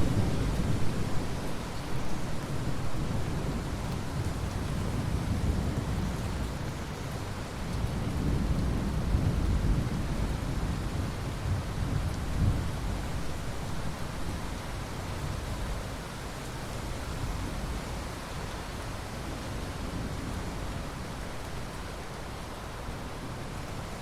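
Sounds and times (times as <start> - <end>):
steady rain: 0.0 - 24.0
rolling thunder rumble: 7.6 - 13.0.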